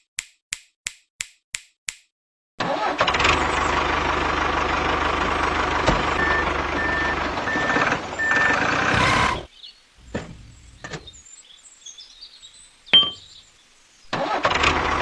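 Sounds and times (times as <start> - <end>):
vehicle engine running loudly: 2.6 - 9.5
reversing alarm beeping: 6.2 - 9.5.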